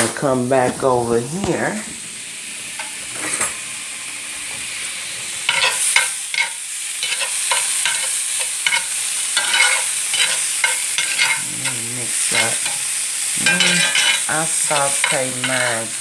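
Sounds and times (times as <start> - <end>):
vegetables sizzling in a pan: 0.0 - 16.0
utensil stirring and scraping: 5.5 - 12.8, 13.4 - 15.9.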